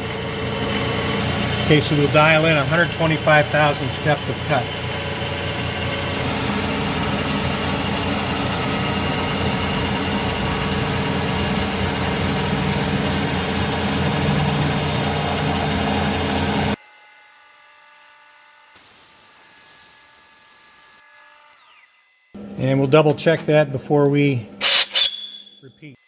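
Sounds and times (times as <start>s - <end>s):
milling machine humming: 0.0s - 16.8s, 22.4s - 25.5s.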